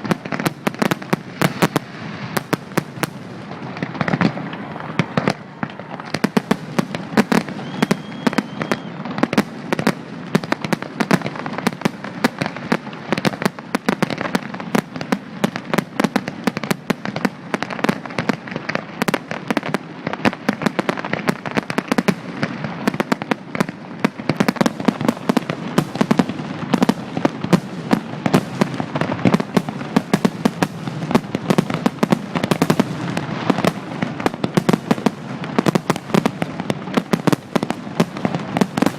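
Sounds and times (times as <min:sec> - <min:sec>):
fireworks bangs and cracks: 0:00.0 - 0:38.9
faint short whistle: 0:07.5 - 0:09.0.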